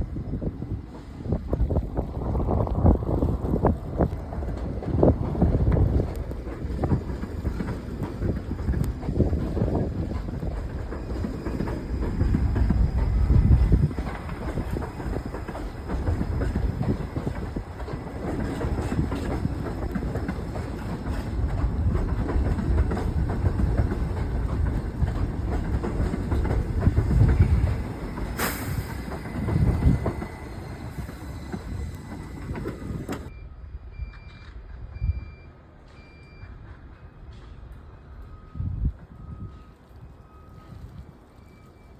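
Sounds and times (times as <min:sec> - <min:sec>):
subway train rumbling on tracks: 0:00.0 - 0:41.9
faint high beeps: 0:33.3 - 0:36.5.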